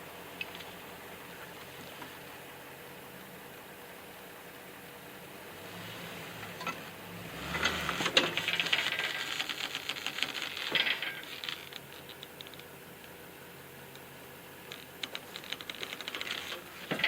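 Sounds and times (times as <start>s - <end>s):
truck engine idling: 0.0s - 17.0s
metallic clicking and rattling: 7.5s - 13.2s, 13.9s - 17.0s.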